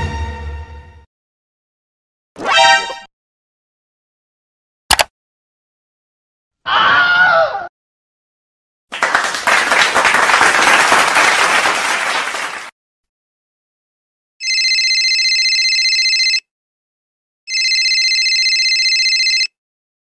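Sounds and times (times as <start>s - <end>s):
group of people clapping: 8.9s - 12.8s
telephone ringing: 14.4s - 16.5s, 17.5s - 19.6s.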